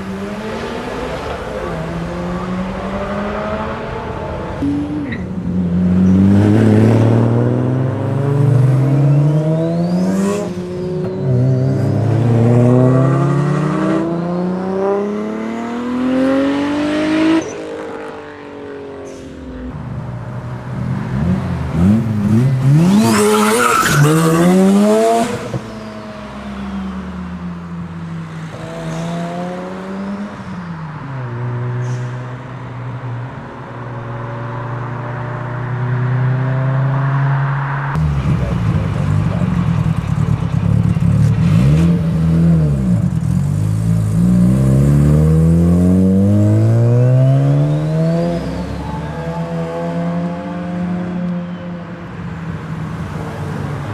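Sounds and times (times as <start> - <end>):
rotary engine accelerating: 0.0 - 17.4, 19.4 - 27.0, 34.1 - 51.3.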